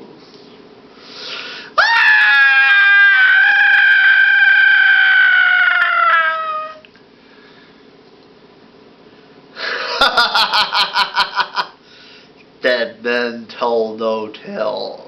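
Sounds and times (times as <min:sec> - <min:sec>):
high-pitched wailing cry: 0:01.8 - 0:06.9.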